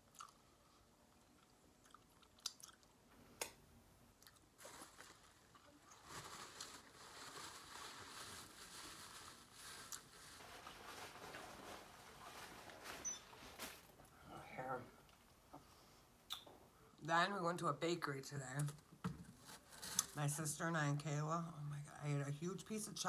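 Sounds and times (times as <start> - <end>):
close-up chewing: 0.0 - 3.1, 4.1 - 6.8
paper napkin rustling: 4.6 - 14.0
mouth clicks: 16.3 - 16.5.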